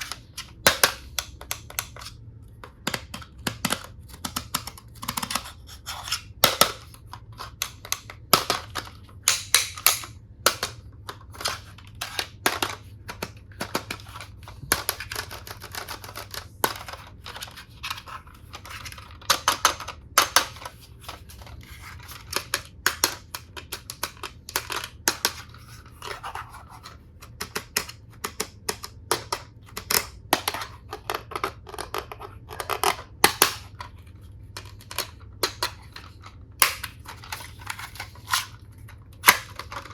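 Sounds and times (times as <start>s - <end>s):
plastic toy pieces clicking: 22.0s - 26.2s.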